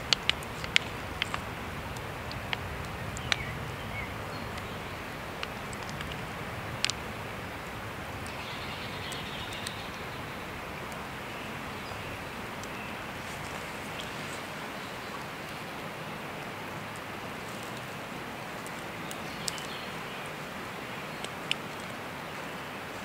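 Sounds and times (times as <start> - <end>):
fire popping: 0.0 - 14.6
campfire crackling: 0.0 - 23.0.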